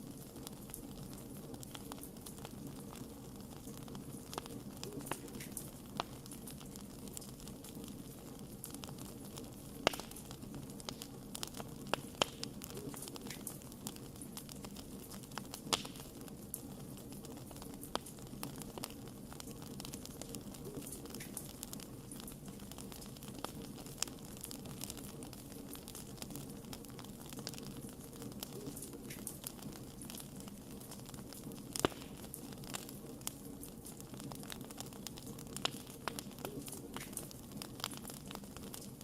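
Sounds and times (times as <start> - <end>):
wood fire crackling and popping: 0.0 - 39.0.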